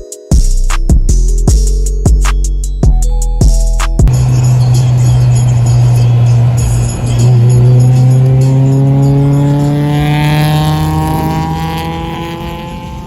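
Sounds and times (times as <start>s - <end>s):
steady low drone: 4.1s - 10.9s
car engine accelerating: 4.1s - 13.0s.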